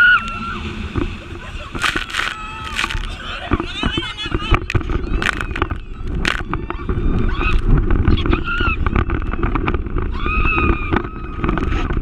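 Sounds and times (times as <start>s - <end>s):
boat engine: 0.0s - 12.0s
wind on microphone: 0.0s - 12.0s
water splashing: 0.3s - 8.1s.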